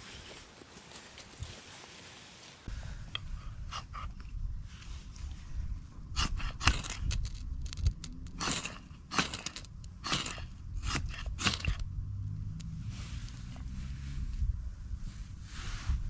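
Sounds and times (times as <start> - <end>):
sticks snapping by hand: 6.2 - 11.9.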